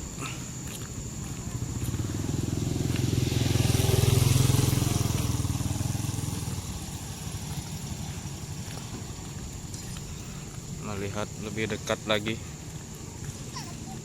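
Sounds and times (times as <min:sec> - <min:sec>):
vehicle engine passing by: 0:01.4 - 0:10.0.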